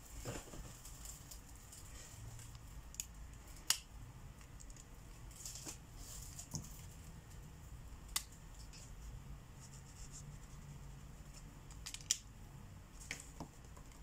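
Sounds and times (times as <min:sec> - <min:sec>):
marker scratching on paper: 0:09.6 - 0:11.4.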